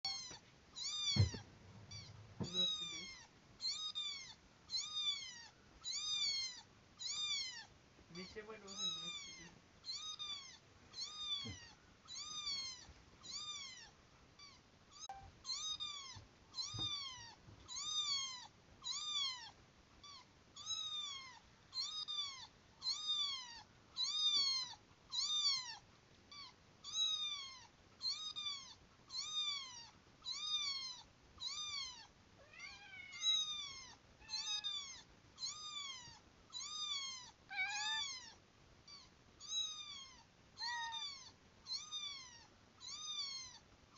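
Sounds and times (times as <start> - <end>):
lower meows: 0.0 - 3.2, 36.6 - 38.4
kitten meowing: 0.0 - 43.6.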